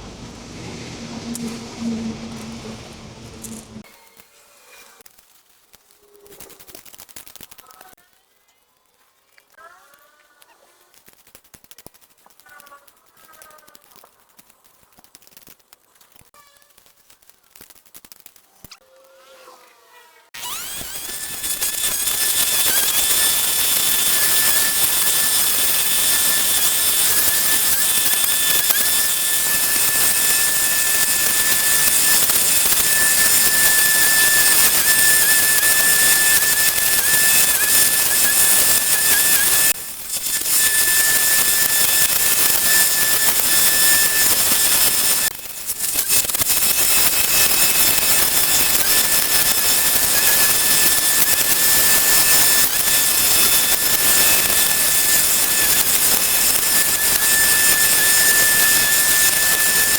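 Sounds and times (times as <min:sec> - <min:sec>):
power tool whining: 0:01.0 - 0:05.0, 0:20.4 - 0:59.9.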